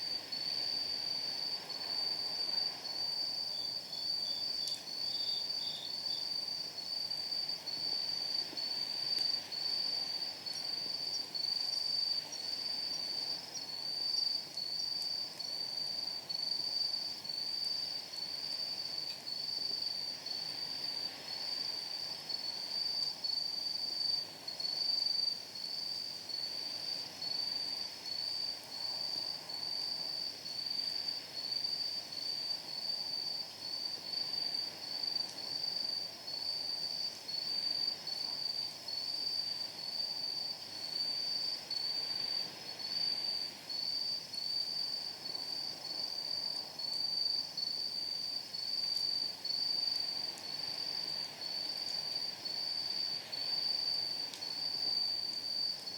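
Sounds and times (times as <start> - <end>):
insect high-pitched chirping: 3.0 - 6.9.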